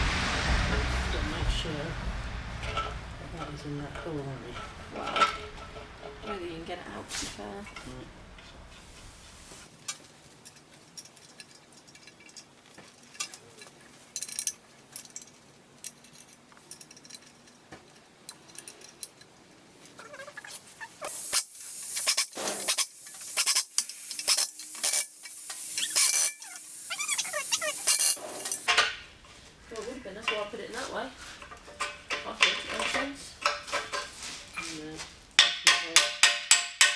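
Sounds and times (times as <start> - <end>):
tools clicking: 19.9 - 28.7
hissing scrapes: 20.0 - 28.7.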